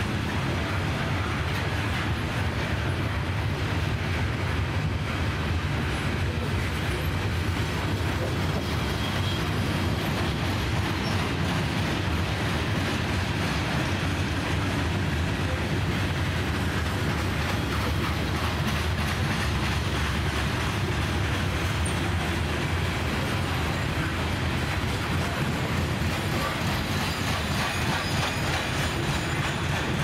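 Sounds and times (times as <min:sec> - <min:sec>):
freight train wheels rumbling: 0:00.0 - 0:30.0.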